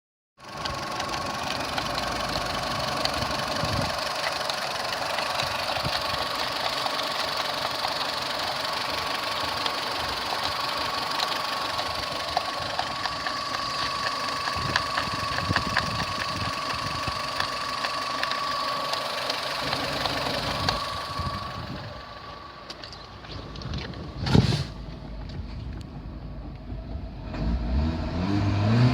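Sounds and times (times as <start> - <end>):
car engine idling: 0.4 - 27.6
high whine: 11.6 - 27.3.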